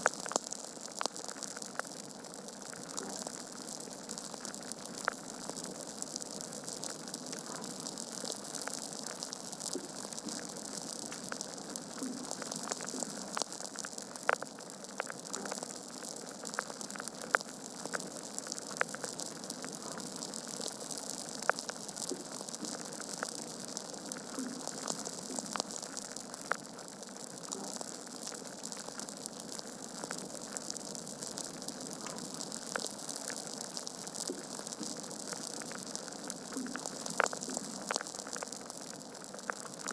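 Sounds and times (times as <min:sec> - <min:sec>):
logs crackling and popping: 0:00.0 - 0:39.9.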